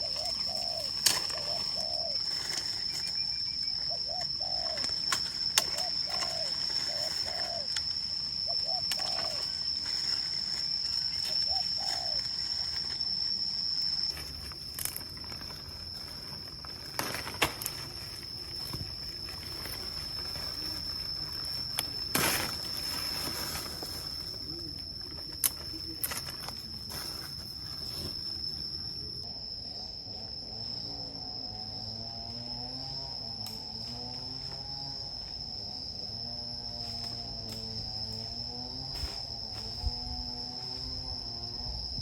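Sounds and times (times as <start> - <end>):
dove cooing: 0.0 - 2.8, 3.8 - 7.8, 8.4 - 9.7, 11.3 - 12.4
insect drone: 0.0 - 42.0.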